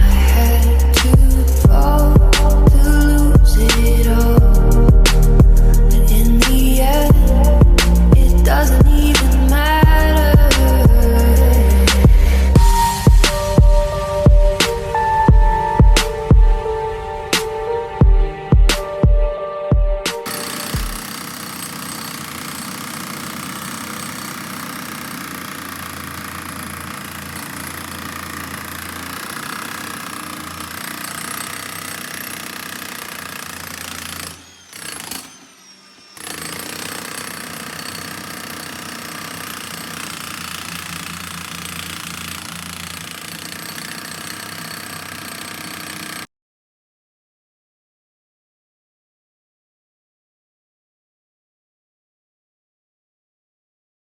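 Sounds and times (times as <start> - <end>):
jackhammer breaking concrete: 0.0 - 13.3, 20.2 - 46.3.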